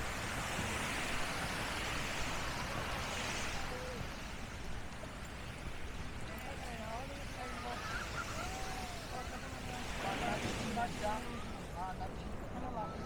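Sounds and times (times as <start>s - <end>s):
small waves washing onto sand: 0.0s - 13.0s
faint voices: 6.3s - 13.0s.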